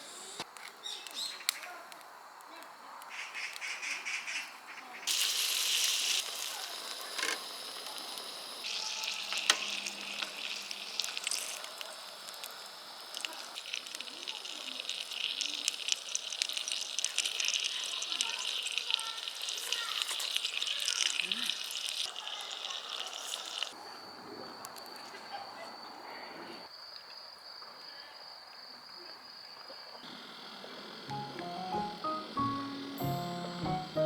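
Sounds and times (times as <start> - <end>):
pops and crackles: 5.1 - 23.7
food sizzling in a pan: 5.1 - 23.8, 30.2 - 34.0.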